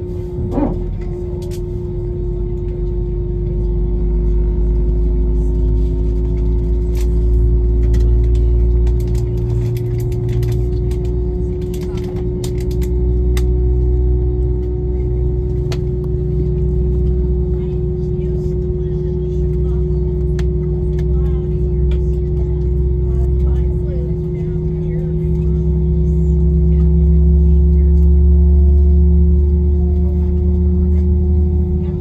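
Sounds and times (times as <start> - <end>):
deep rumble: 0.0 - 32.0.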